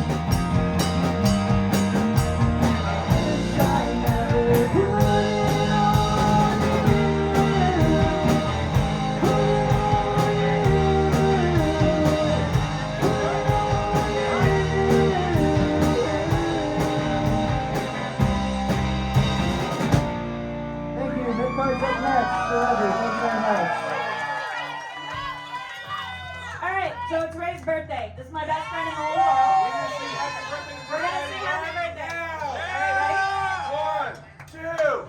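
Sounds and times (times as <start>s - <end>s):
steady drum beat: 0.0s - 20.3s
bass guitar: 0.0s - 24.1s.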